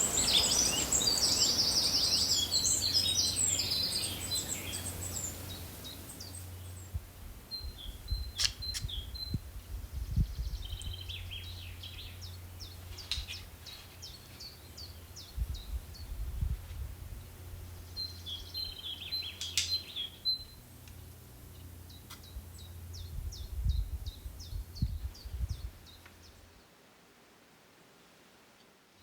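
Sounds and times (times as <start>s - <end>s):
birds chirping: 0.0s - 16.2s, 17.2s - 20.9s.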